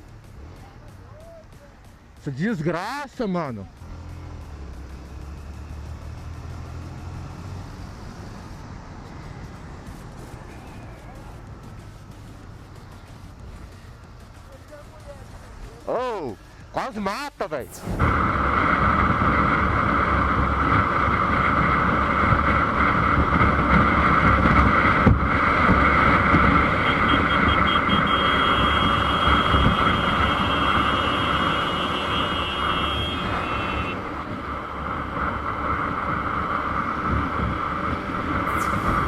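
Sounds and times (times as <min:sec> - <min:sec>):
road noise: 0:00.0 - 0:39.0
motorcycle engine: 0:03.6 - 0:15.8, 0:17.7 - 0:39.0
faint high whine: 0:17.6 - 0:20.8, 0:38.4 - 0:39.0.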